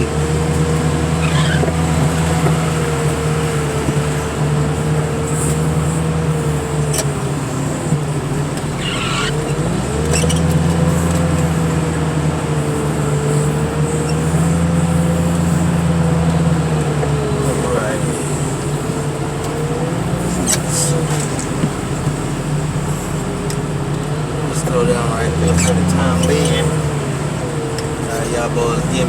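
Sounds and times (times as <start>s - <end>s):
car crusher engine and hydraulics: 0.0s - 29.0s
hydraulic whine: 0.0s - 29.0s
rain hiss: 1.1s - 9.5s, 10.8s - 16.6s.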